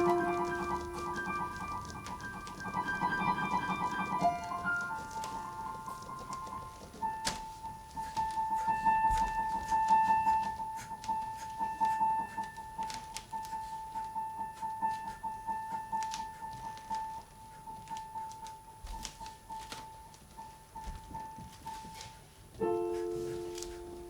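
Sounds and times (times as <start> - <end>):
repeated high keyboard note: 0.0 - 1.7.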